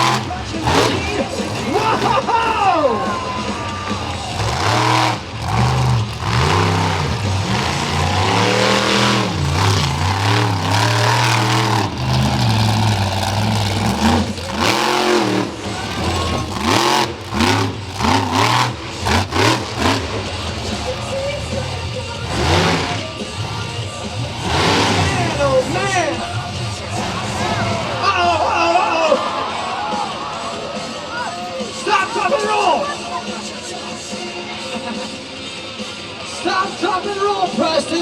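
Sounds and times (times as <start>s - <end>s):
monster truck engine revving: 0.0s - 28.6s.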